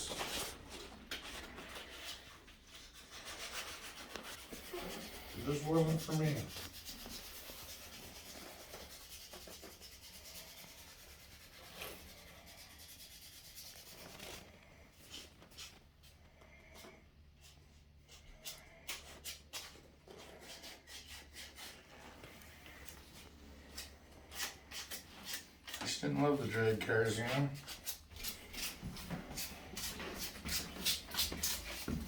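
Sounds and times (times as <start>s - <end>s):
faint rubbing or scraping: 0.0s - 18.8s.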